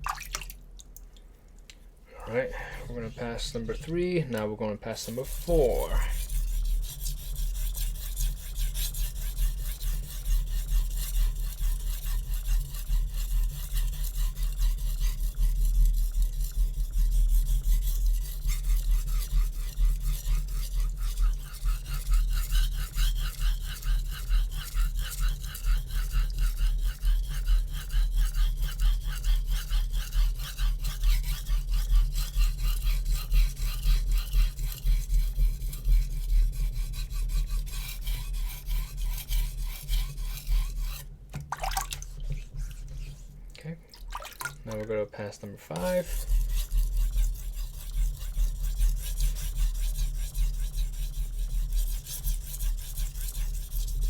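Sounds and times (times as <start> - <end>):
steady low hum: 1.2 - 7.4
knife scraping on wet whetstone: 2.4 - 43.4, 45.7 - 54.0.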